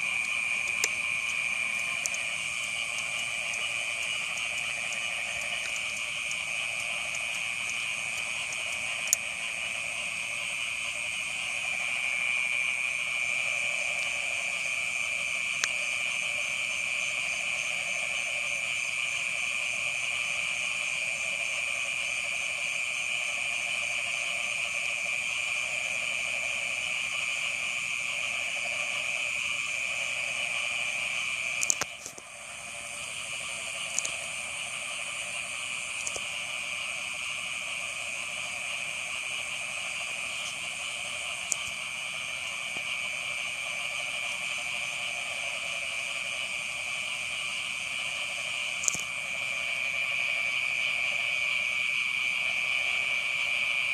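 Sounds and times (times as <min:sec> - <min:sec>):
frogs trilling: 0:00.0 - 0:53.9
sharp clicks: 0:00.2 - 0:09.3, 0:36.0 - 0:36.3.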